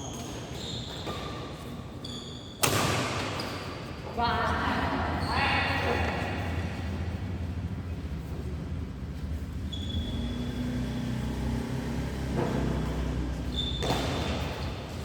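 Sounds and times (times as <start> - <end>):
shoe squeaks: 0.0 - 4.0, 5.1 - 6.2, 9.2 - 11.6, 12.5 - 15.0
low rumble: 6.1 - 9.7.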